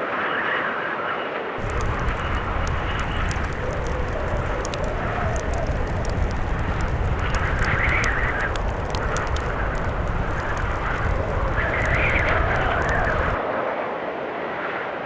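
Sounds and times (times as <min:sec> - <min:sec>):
blizzard wind howling: 0:01.6 - 0:13.4
low rumble: 0:01.6 - 0:13.4
wood fire crackling: 0:01.6 - 0:13.4.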